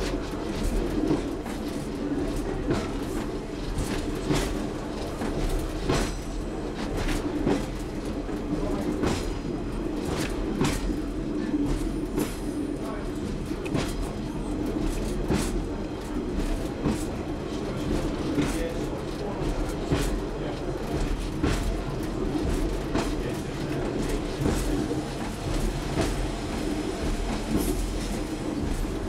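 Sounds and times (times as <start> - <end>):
train wheels clacking over rail joints: 0.0 - 29.0.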